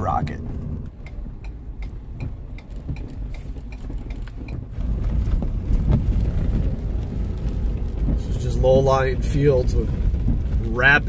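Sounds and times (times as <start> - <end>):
light even ticking: 0.0 - 4.8
vehicle road and engine rumble: 0.0 - 11.0.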